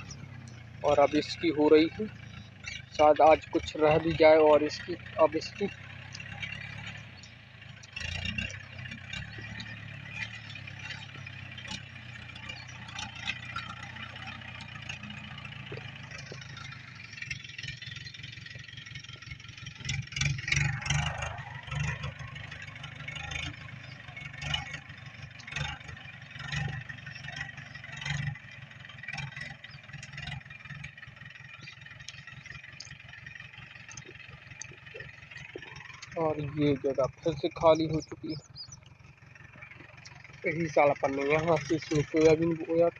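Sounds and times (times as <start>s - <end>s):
tractor engine running: 0.0s - 42.9s.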